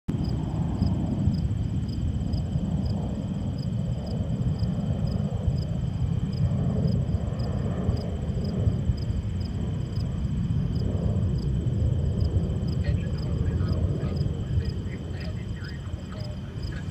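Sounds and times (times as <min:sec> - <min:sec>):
heavy engine rumbling: 0:12.8 - 0:16.9.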